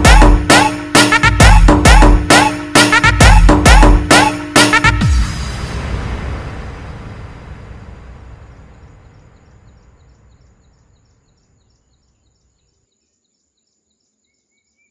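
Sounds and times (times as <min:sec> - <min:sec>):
waterfall rushing: 0:05.0 - 0:09.7.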